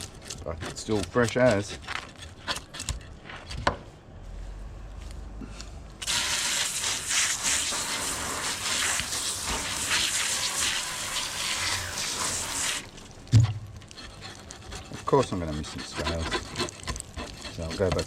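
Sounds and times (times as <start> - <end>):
water spraying from hose: 6.0 - 13.0.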